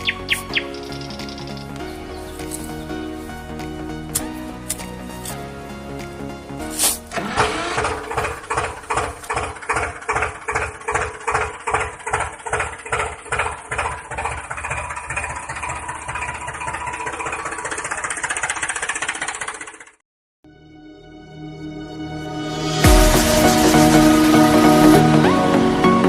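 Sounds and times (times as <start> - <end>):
small motor chugging: 7.1 - 20.0.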